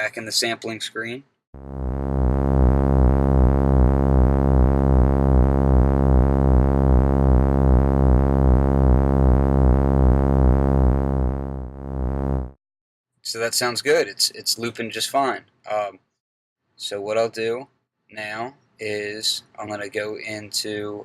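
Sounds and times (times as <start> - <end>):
pulsing low synthesizer note: 1.6 - 12.6.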